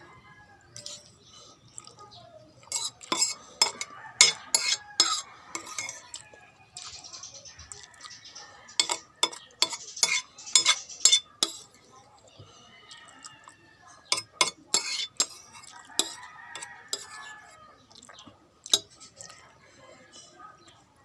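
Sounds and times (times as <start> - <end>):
spoon scraping and stirring: 0.6 - 20.8
spoon clinking against bowl: 0.8 - 1.2, 2.6 - 6.2, 8.7 - 11.7, 14.1 - 17.4, 18.7 - 19.3.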